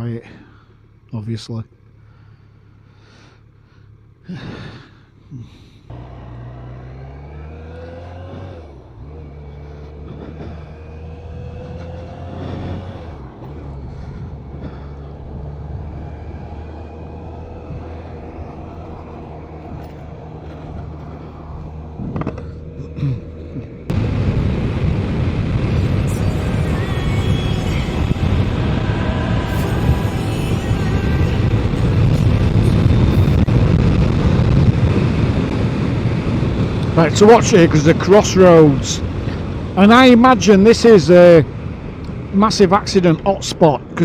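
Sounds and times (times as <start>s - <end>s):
motorcycle engine accelerating: 5.9s - 40.9s
loud rush of wind noise: 23.9s - 44.0s.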